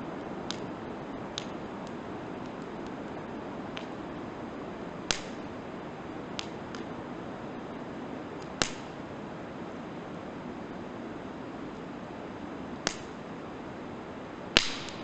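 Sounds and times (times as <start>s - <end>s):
fire hissing: 0.0s - 15.0s
firewood popping: 0.4s - 4.1s, 5.1s - 5.5s, 6.4s - 6.9s, 8.4s - 8.9s, 14.6s - 15.0s.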